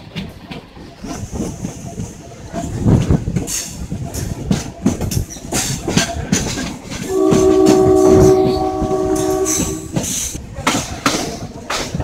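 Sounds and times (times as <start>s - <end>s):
wheels clattering over rail joints: 0.0s - 12.0s
multi-tone train horn blast: 7.0s - 10.2s.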